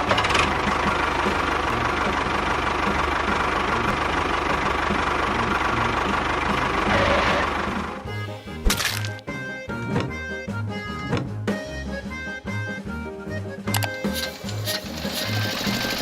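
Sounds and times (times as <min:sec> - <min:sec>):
small motor running with whine: 0:14.0 - 0:16.0.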